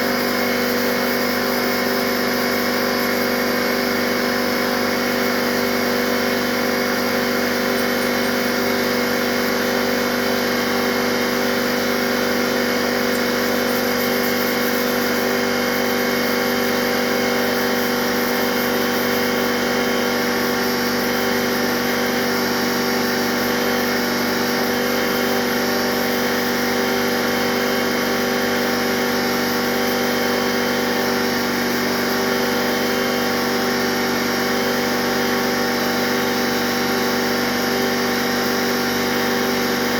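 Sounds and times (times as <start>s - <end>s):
pneumatic sander humming: 0.0s - 39.9s.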